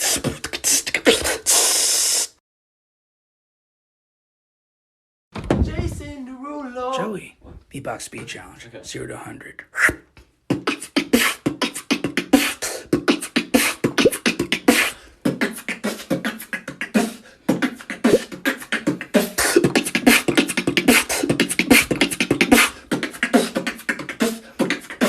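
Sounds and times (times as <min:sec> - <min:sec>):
person beatboxing: 0:00.0 - 0:02.3, 0:09.6 - 0:25.0.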